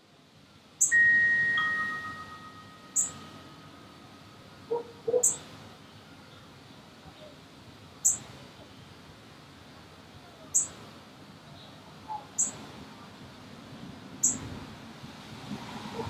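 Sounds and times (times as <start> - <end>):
faint background noise: 0.0 - 16.0
small bird high chirps: 0.8 - 3.6, 5.2 - 5.4, 8.0 - 8.2, 10.5 - 10.8, 12.4 - 12.6, 14.2 - 14.4.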